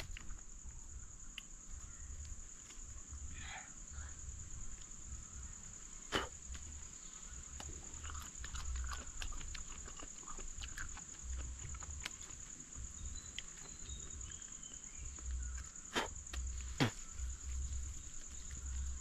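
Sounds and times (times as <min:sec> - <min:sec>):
wet chewing and smacking: 0:07.3 - 0:17.0.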